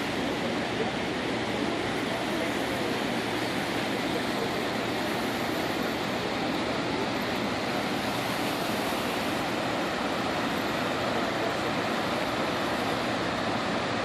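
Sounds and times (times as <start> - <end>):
floodwater rushing through gates: 0.0 - 14.0.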